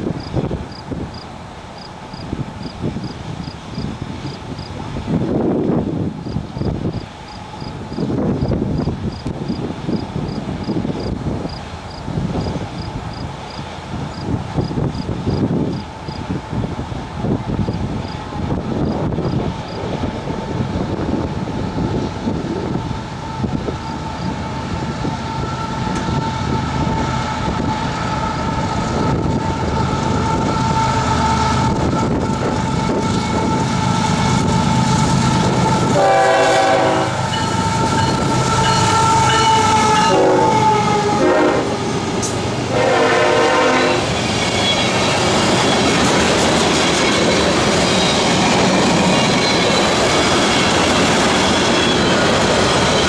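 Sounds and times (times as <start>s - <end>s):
diesel locomotive approaching: 0.0s - 53.0s
locomotive air horn blasts: 29.4s - 44.2s.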